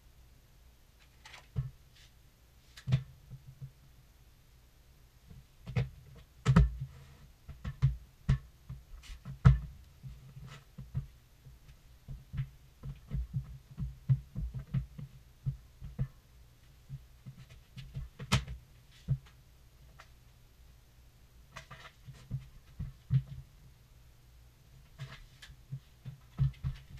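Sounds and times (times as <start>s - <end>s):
boots and knees thumping on floor: 25.7s - 26.9s.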